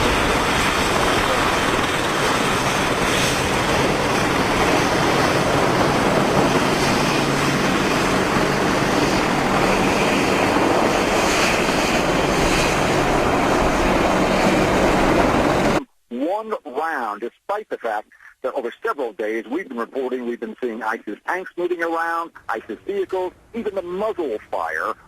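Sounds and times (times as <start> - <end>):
helicopter engine and rotor: 0.0 - 15.8.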